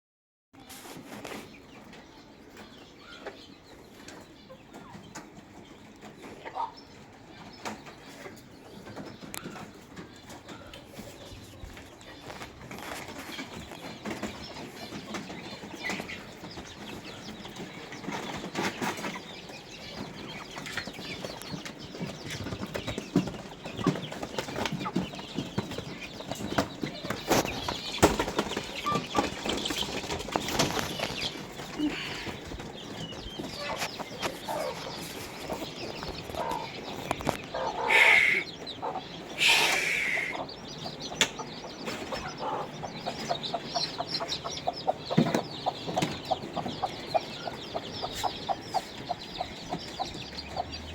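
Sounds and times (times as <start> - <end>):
chickens clucking: 0.6 - 50.9
clicks and rustles: 7.6 - 37.6
chicken squawking calls: 37.6 - 40.5.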